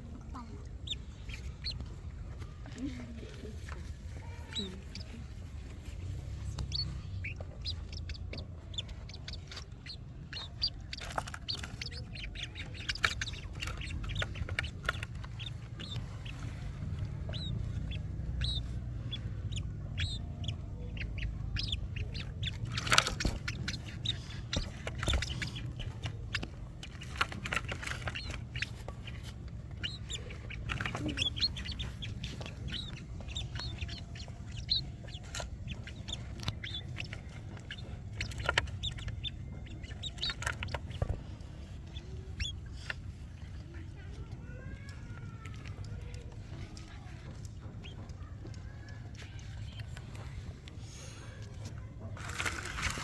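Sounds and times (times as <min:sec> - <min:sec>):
birds chirping and clucking: 0:00.0 - 0:53.0.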